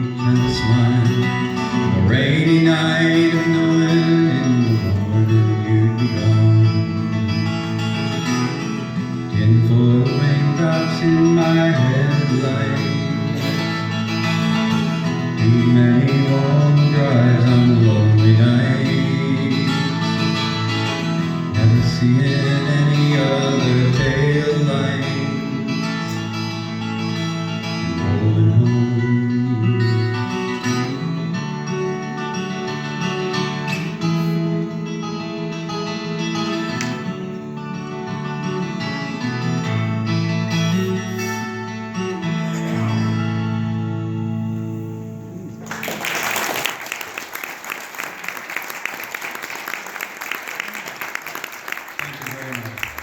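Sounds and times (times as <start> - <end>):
acoustic guitar strummed and picked: 0.0 - 46.1
small audience applauding: 45.6 - 53.0.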